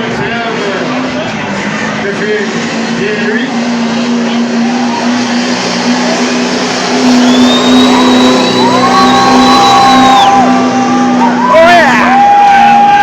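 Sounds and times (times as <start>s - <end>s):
truck engine at high revs: 0.0s - 13.0s
high whistle: 6.8s - 10.9s.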